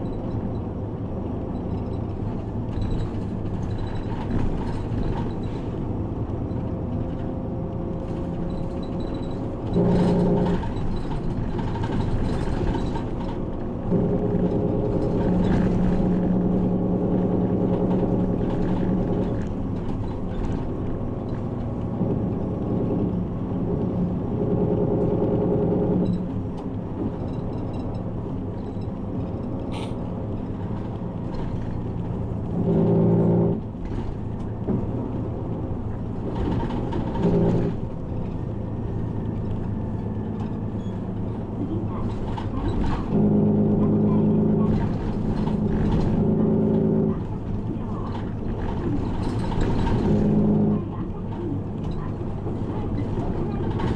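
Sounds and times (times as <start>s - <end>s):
bus engine and road drone: 0.0s - 53.9s.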